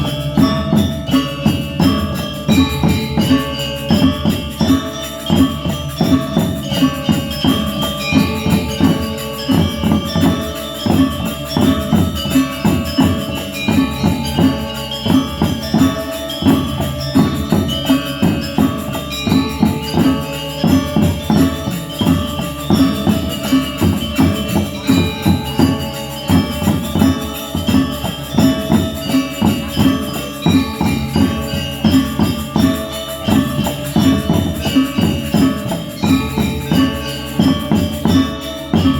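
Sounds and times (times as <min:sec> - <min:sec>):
gamelan ensemble playing: 0:00.0 - 0:38.9.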